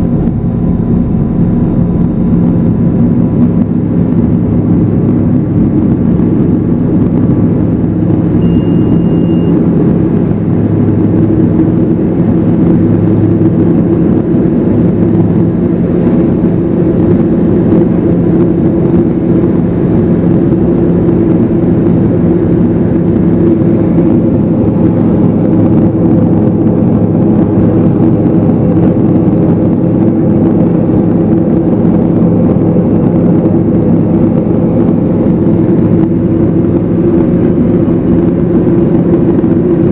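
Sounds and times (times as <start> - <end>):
aircraft engine and propeller: 0.0 - 39.9
short high beep: 8.4 - 9.6.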